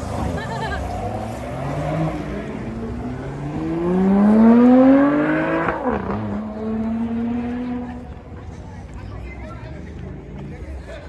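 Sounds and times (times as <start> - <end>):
vehicle engine accelerating: 0.0 - 10.9.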